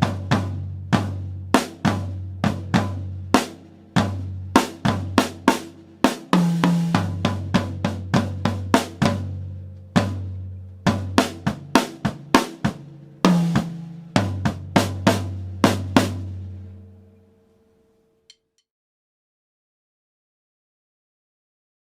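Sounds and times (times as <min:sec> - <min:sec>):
drum kit playing: 0:00.0 - 0:16.8.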